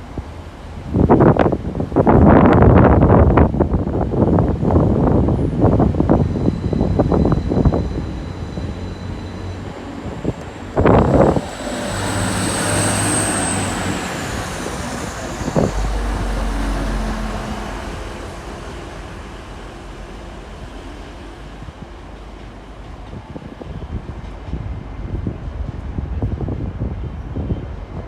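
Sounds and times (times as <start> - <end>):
train rumble: 0.0 - 28.0
low hum: 4.9 - 23.1
thin high squeal: 6.1 - 19.7.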